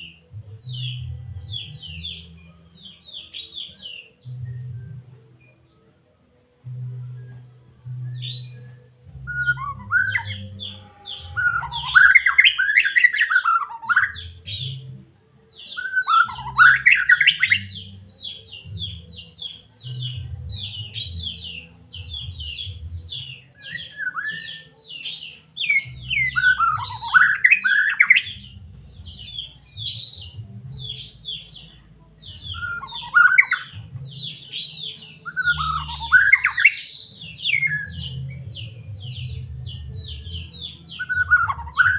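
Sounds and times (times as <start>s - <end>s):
bird singing high chirps: 0.0s - 5.9s, 7.0s - 14.9s, 15.5s - 41.9s
bird whistled phrases: 23.6s - 28.3s.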